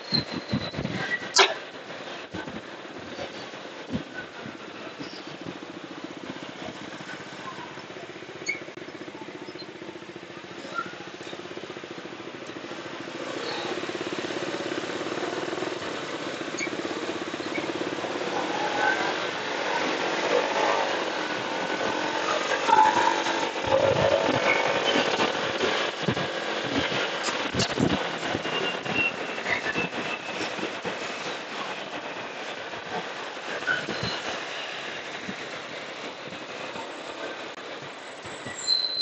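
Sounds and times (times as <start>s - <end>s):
traffic noise: 0.0s - 39.0s
motorcycle engine running: 3.8s - 33.4s.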